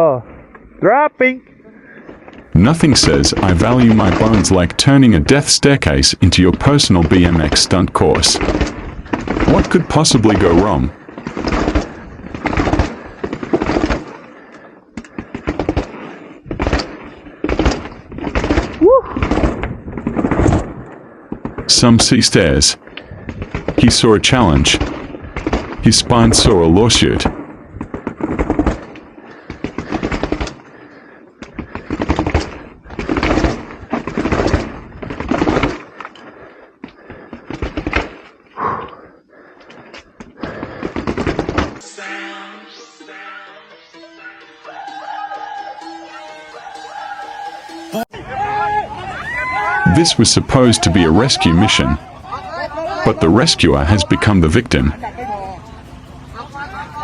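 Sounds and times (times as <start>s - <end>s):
bike rattling down stairs: 11.1s - 14.2s.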